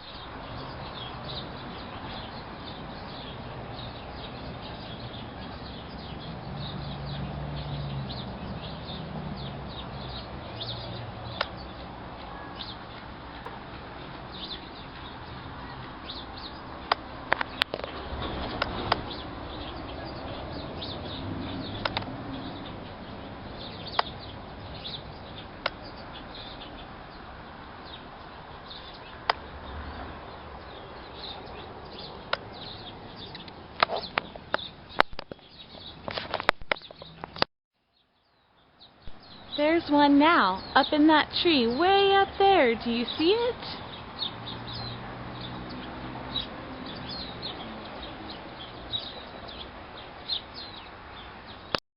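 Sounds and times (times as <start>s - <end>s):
small birds chirping: 0.0s - 51.8s
sharp clicks: 21.8s - 22.1s, 33.4s - 35.4s.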